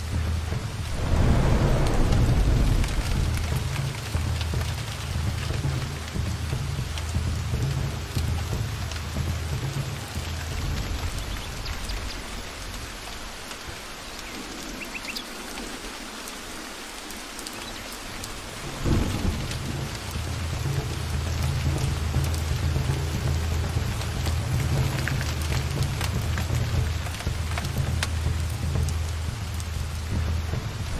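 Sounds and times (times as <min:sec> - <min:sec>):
steady rain in forest: 0:00.0 - 0:30.9
thunder clap: 0:00.1 - 0:08.0, 0:18.6 - 0:30.9
low rolling thunder: 0:00.1 - 0:13.9, 0:18.4 - 0:30.9.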